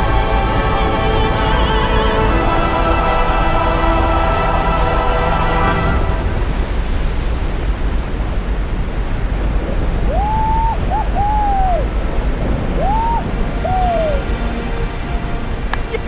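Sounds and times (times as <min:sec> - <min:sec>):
rushing water: 0:00.0 - 0:16.0
wind: 0:00.0 - 0:16.0
whistle-like tones: 0:10.1 - 0:14.6.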